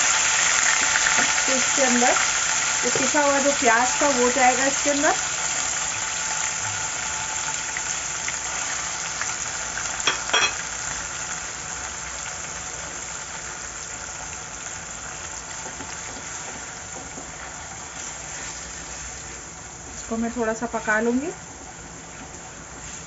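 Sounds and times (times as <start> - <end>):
paste sizzling in hot oil: 0.0 - 19.6
clinks against a pan: 10.0 - 10.6.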